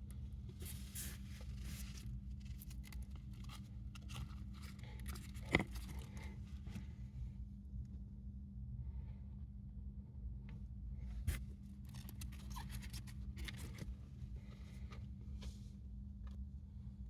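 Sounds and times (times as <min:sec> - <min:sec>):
hamster rustling and crunching: 0:00.1 - 0:07.0, 0:11.1 - 0:15.8.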